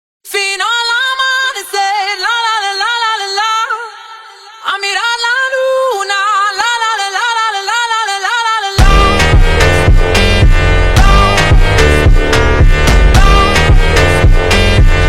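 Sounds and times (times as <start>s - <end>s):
high solo singing voice: 0.3s - 10.2s, 11.0s - 12.4s, 13.1s - 15.0s.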